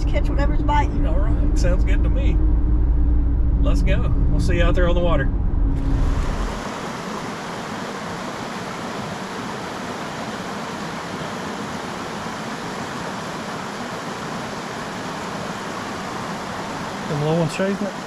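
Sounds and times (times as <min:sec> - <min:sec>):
creek water rushing: 0:05.9 - 0:18.0.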